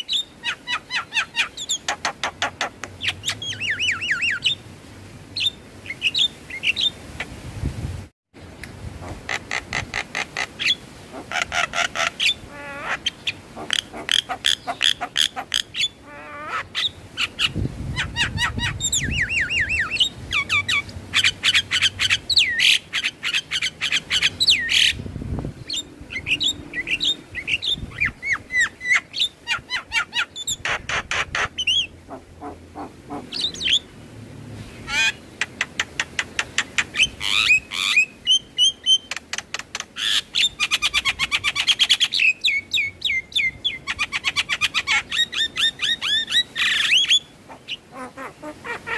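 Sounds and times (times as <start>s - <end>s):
low rumble: 25.0s - 28.0s.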